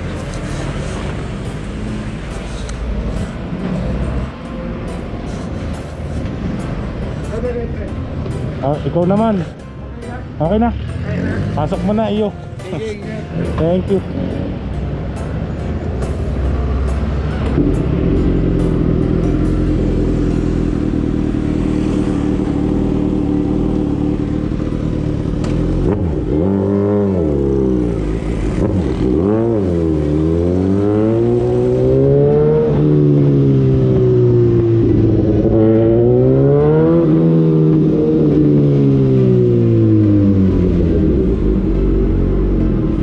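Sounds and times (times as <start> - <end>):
motorcycle engine idling and accelerating: 0.0 - 43.0.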